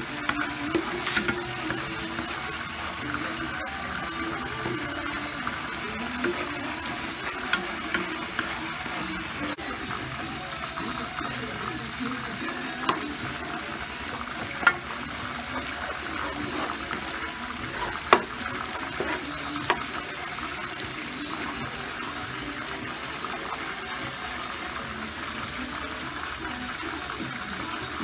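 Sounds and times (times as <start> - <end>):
garlic sizzling in oil: 0.0 - 28.0
spatula knocking on a pan: 17.8 - 18.4.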